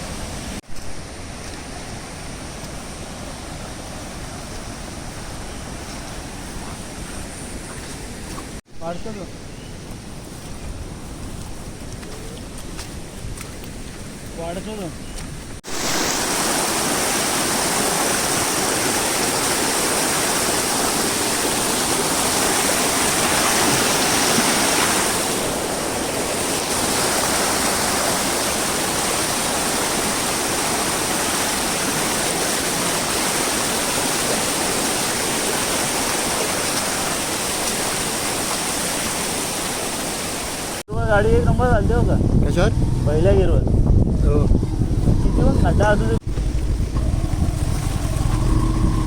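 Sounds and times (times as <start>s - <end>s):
waterfall rushing: 15.6s - 40.8s.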